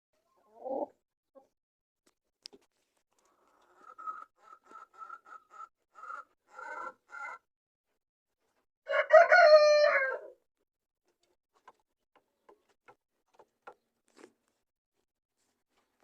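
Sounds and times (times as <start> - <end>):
rooster crowing: 8.8 - 10.4.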